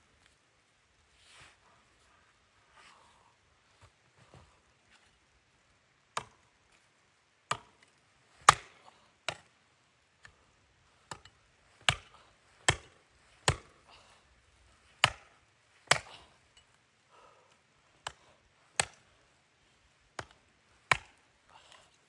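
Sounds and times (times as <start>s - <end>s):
axe chopping wood: 6.2s - 6.4s, 7.5s - 9.6s, 11.1s - 13.8s, 14.9s - 16.3s, 18.0s - 19.1s, 20.1s - 21.2s.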